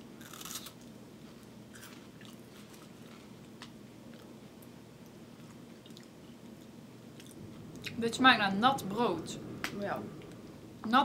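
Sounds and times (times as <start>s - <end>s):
people chewing crackers: 0.2s - 7.4s.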